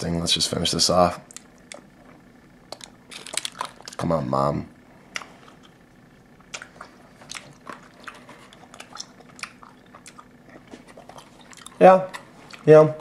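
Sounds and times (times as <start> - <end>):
person chewing candy: 1.3 - 4.1, 5.1 - 5.8, 6.4 - 12.7.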